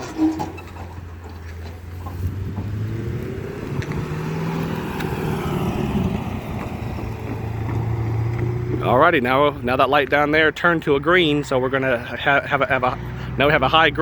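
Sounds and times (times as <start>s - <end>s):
car driving past: 1.0s - 9.8s.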